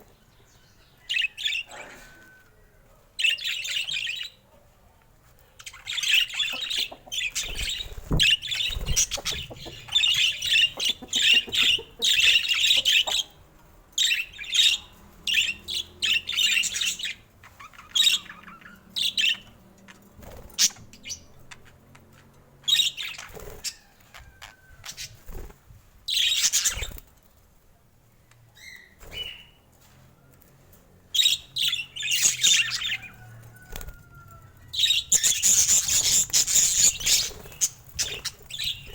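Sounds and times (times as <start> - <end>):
budgerigars chattering and chirping: 5.6 - 13.4, 14.0 - 19.6, 34.8 - 38.9.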